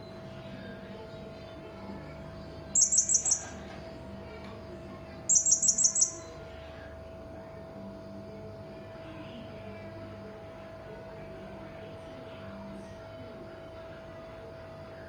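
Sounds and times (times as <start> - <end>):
parrot shrill calls: 2.8 - 3.6, 5.3 - 6.3.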